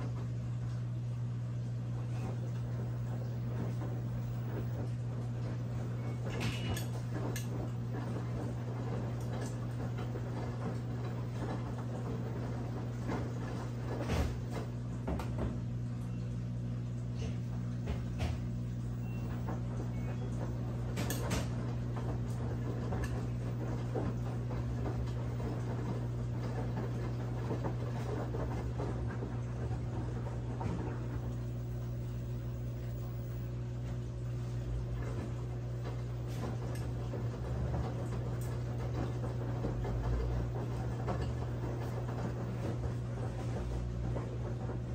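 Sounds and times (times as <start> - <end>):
washing machine motor hum: 0.0 - 44.9.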